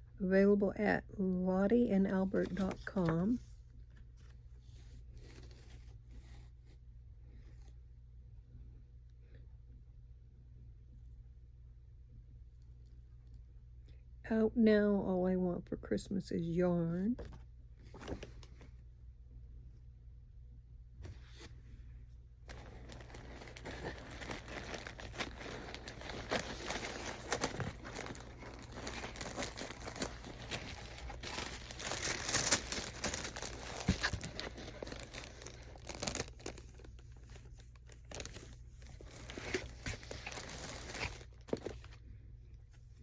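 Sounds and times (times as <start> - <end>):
packaging crinkling and tearing: 22.5 - 42.0.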